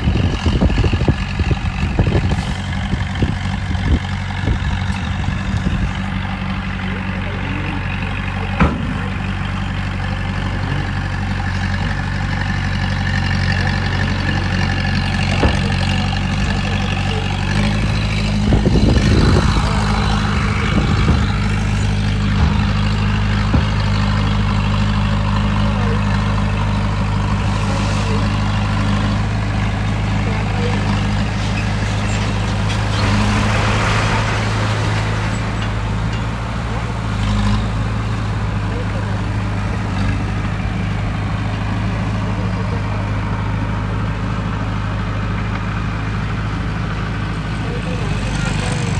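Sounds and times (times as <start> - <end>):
heavy diesel engine running: 0.0 - 48.9.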